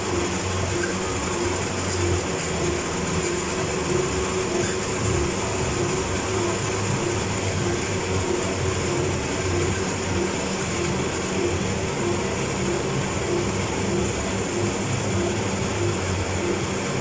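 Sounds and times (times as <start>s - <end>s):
pulsing faint hum: 0.0s - 17.0s
suction unit hissing: 0.0s - 17.0s.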